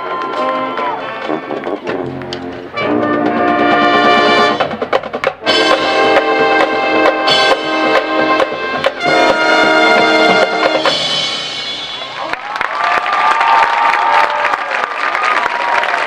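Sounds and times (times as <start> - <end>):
marching band brass chords: 0.0 - 12.2.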